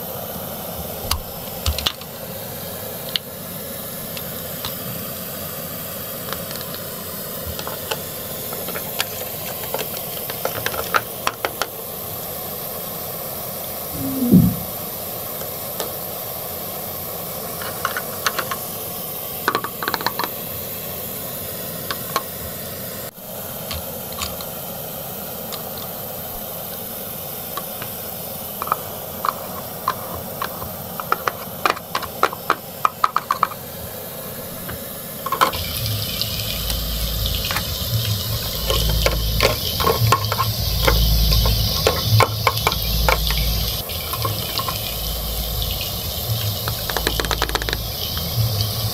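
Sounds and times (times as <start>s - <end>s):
toy stove misting hiss: 0.0s - 48.9s
plastic toy clicks and scrapes: 7.5s - 11.7s, 28.6s - 33.6s, 38.4s - 43.4s, 46.6s - 47.8s
low throbbing: 14.0s - 14.7s.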